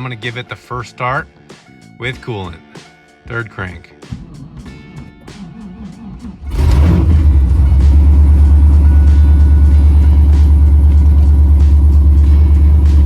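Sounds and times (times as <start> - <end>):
car engine starting and idling: 4.4 - 13.0.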